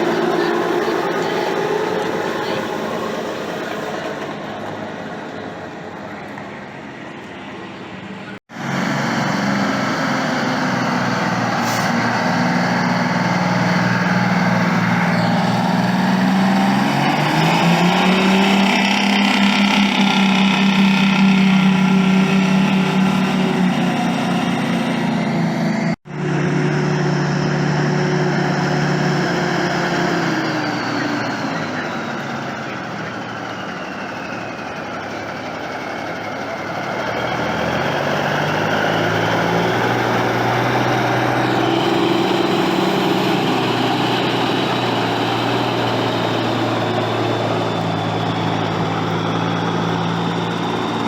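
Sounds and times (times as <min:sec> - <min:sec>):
heavy truck engine running: 0:00.0 - 0:51.0.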